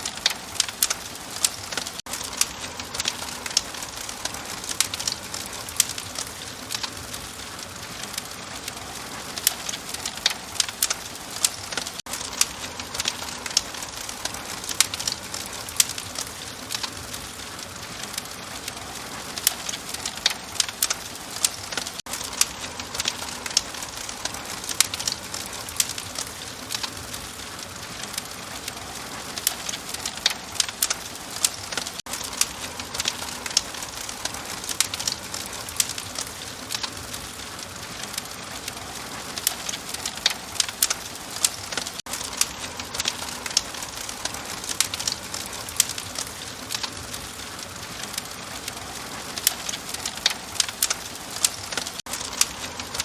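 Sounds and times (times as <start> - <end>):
fire crackling and popping: 0.0 - 53.0.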